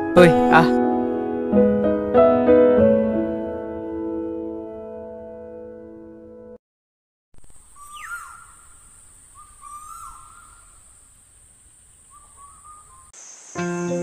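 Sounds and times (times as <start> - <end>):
music: 0.0 - 6.6, 13.5 - 14.0
high-pitched insect buzz: 7.4 - 14.0
bird calling: 7.5 - 13.6.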